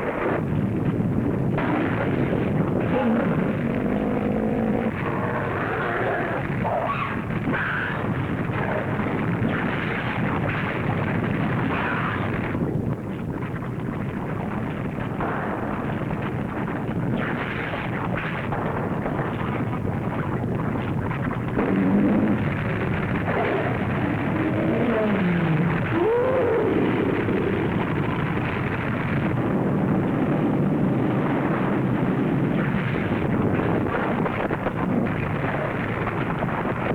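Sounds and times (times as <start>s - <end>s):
rumbling crackling eruption roar: 0.1s - 12.7s, 20.6s - 36.9s.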